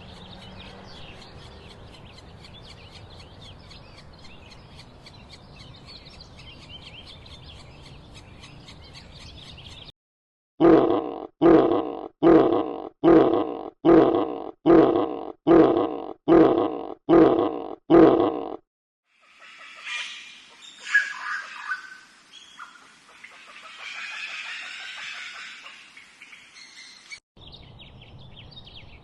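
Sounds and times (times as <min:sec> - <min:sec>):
birds chirping faintly: 0:00.0 - 0:09.9
animal grunting: 0:10.6 - 0:18.6.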